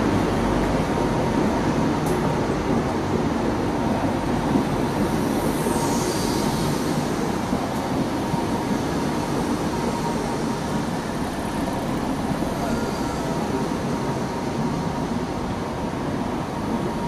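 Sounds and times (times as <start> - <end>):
train wheels rumbling on rail: 0.0 - 17.0
faint high squeal: 9.8 - 15.0.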